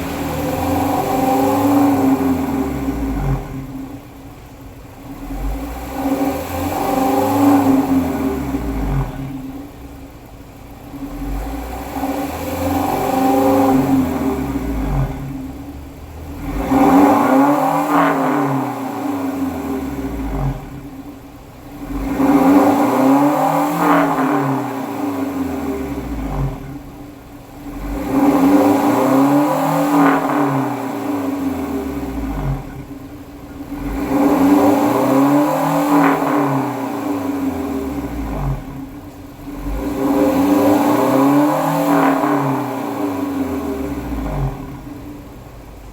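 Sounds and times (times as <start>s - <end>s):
van engine revving: 0.0s - 45.9s.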